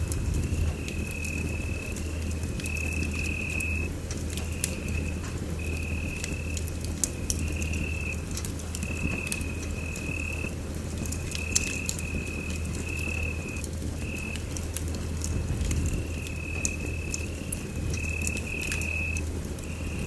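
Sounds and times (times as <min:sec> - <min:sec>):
low rumble: 0:00.0 - 0:11.1
fireplace fire crackling: 0:00.0 - 0:20.0.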